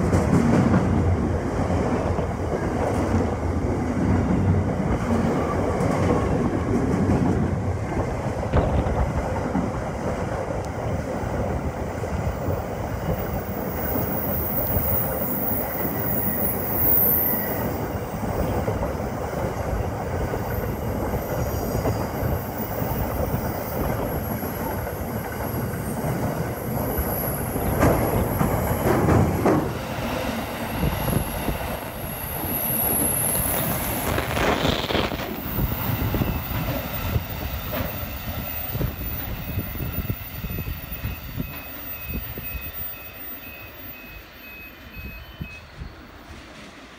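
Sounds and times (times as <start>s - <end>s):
high wheel squeal: 13.1s - 17.9s, 31.0s - 46.1s
train wheels clicking over rail joints: 23.0s - 29.9s, 32.8s - 39.9s.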